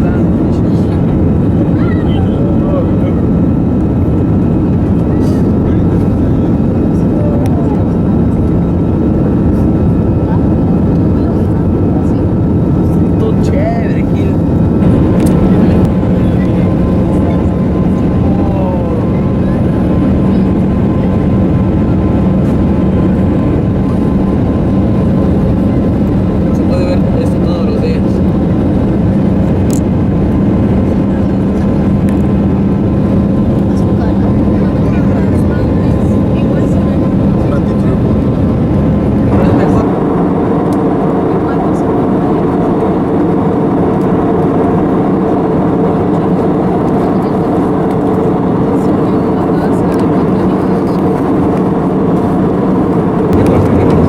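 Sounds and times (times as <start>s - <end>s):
airliner engines droning: 0.0s - 54.0s
rushing air: 14.5s - 16.2s, 51.4s - 54.0s.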